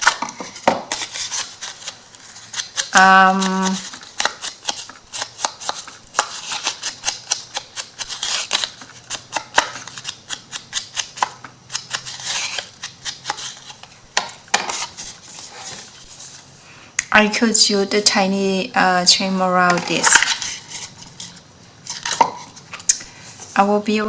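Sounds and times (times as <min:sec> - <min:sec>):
scissors snipping paper: 0:00.0 - 0:13.8
paper rustling: 0:00.0 - 0:16.5.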